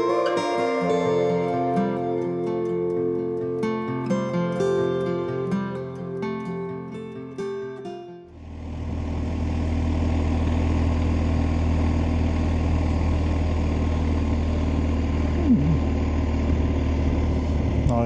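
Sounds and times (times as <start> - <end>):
motorcycle engine running: 8.4 - 18.0.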